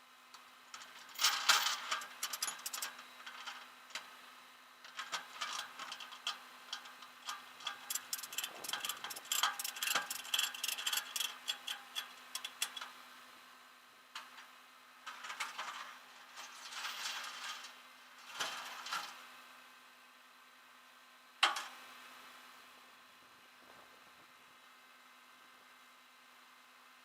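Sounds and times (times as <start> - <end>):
faint steady hum: 0.0 - 27.0
sharp clicks and ticks: 2.0 - 2.9, 7.3 - 12.9.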